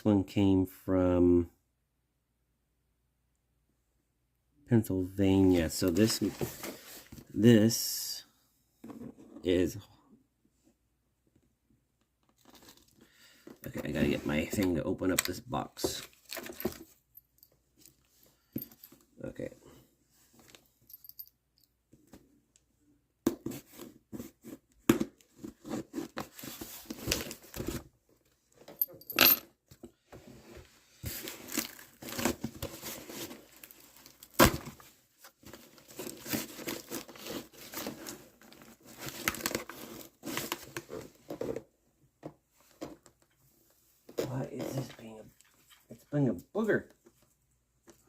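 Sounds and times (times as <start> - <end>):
cardboard and tape tearing: 31.1 - 34.8, 35.5 - 41.0.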